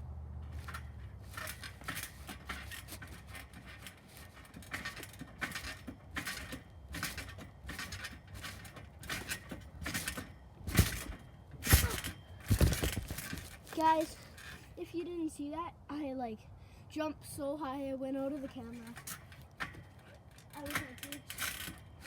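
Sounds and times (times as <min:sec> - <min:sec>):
heavy landing thumps: 0:00.5 - 0:14.6.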